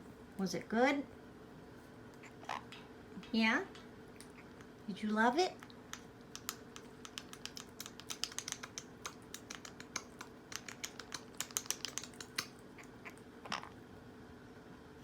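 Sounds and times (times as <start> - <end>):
parrot beak clicking and tapping: 5.6 - 13.2.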